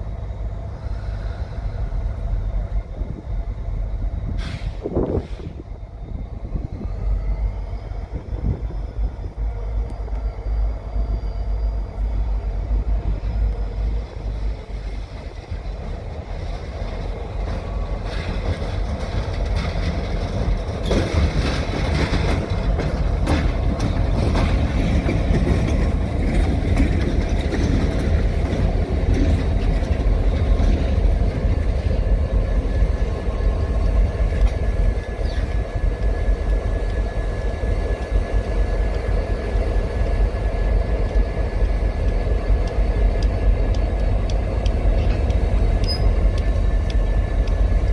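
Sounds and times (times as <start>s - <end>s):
diesel locomotive rumble: 0.0s - 47.9s
rail cars rolling: 0.0s - 47.9s
sharp clicks: 42.0s - 47.9s.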